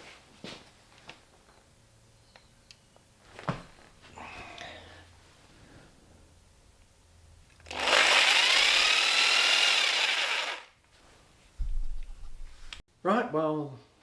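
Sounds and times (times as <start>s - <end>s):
power tool motor spinning: 7.6s - 10.7s.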